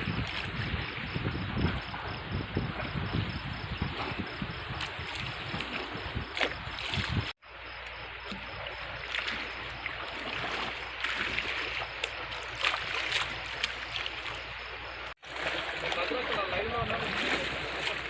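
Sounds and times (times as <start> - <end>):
wind gusts on microphone: 0.0 - 7.4
rushing floodwater: 0.0 - 18.0.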